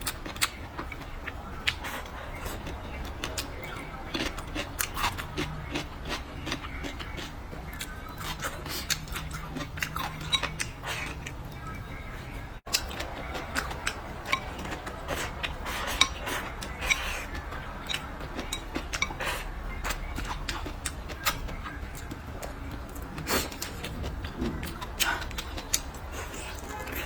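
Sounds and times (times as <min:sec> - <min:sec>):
chewing and mouth smacks: 0:00.0 - 0:11.8, 0:12.7 - 0:27.0
utensils clinking against dishes: 0:01.6 - 0:11.9, 0:12.7 - 0:22.2.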